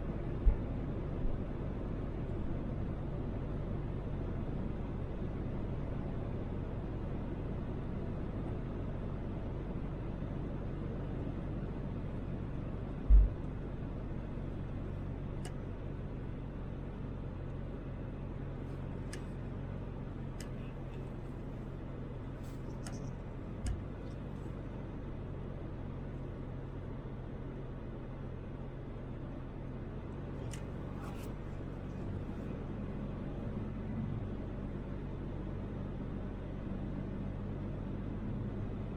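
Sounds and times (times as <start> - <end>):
car engine hum: 0.0 - 38.9
road and tyre noise: 0.0 - 38.9
low thump: 13.1 - 13.4
faint ticks: 22.4 - 24.2.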